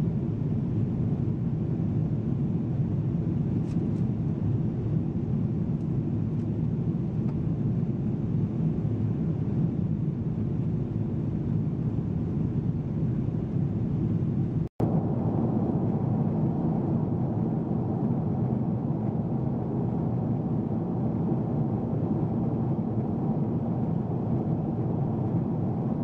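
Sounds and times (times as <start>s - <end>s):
jet engine cabin rumble: 0.0s - 26.0s.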